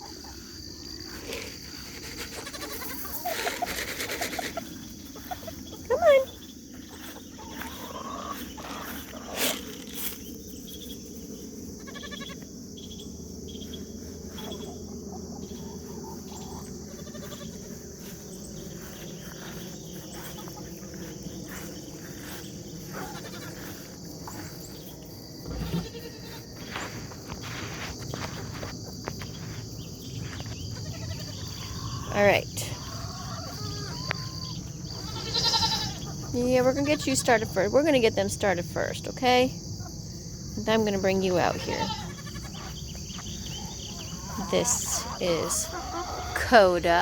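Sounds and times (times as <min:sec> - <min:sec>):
insects chirring: 0:00.0 - 0:47.0
goats bleating: 0:23.0 - 0:23.6, 0:25.7 - 0:26.4, 0:35.0 - 0:36.0, 0:41.6 - 0:42.6.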